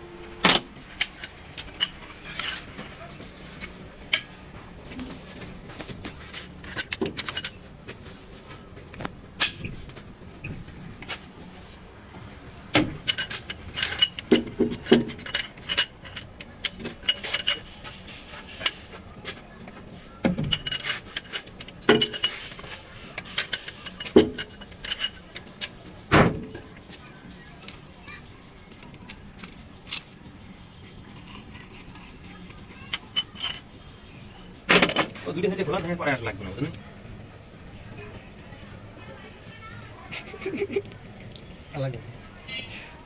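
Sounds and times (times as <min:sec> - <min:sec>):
metal tools clinking together: 0:06.6 - 0:07.7, 0:13.0 - 0:18.9, 0:20.4 - 0:25.8, 0:32.8 - 0:33.7.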